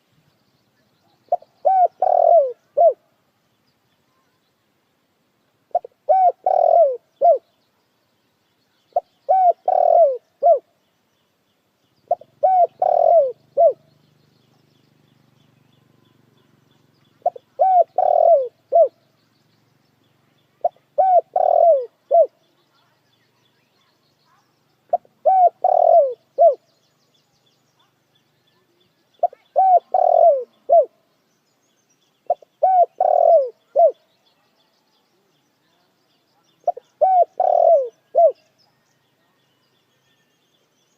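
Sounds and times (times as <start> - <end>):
dove cooing: 1.3 - 3.0, 5.7 - 7.4, 8.9 - 10.7, 12.1 - 13.8, 17.2 - 19.0, 20.6 - 22.4, 24.9 - 26.7, 29.2 - 31.0, 32.3 - 34.0, 36.6 - 38.4.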